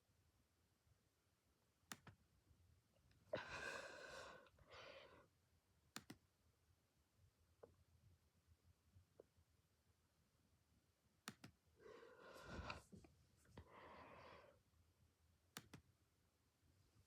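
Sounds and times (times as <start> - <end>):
sharp clicks: 11.2 - 11.6.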